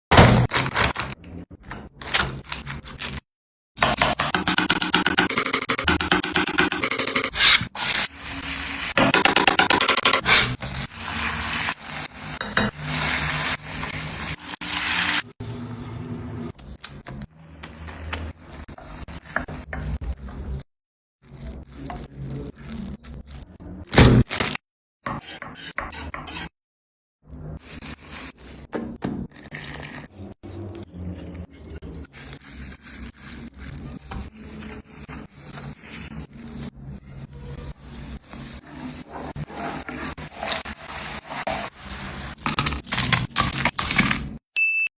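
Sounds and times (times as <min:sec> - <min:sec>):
rhythmic rubbing strokes: 0:03.8 - 0:08.0
scraping and rubbing: 0:03.8 - 0:08.1, 0:09.0 - 0:11.4, 0:38.4 - 0:42.4.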